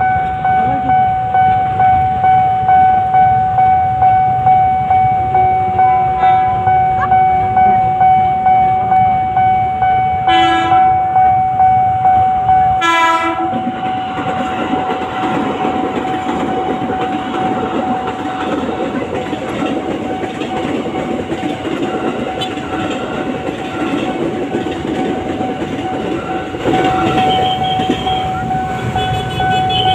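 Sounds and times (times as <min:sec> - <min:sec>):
train rumble and wheel clatter: 0:00.0 - 0:29.9
warning bell ringing: 0:00.0 - 0:29.9
train horn blasts: 0:05.7 - 0:07.1, 0:10.2 - 0:11.2, 0:12.6 - 0:15.4, 0:26.8 - 0:29.9.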